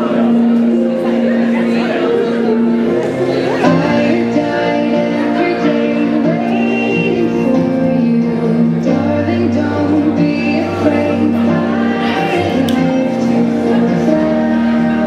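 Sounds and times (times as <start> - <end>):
music: 0.0 - 15.0
woman singing: 3.6 - 15.0.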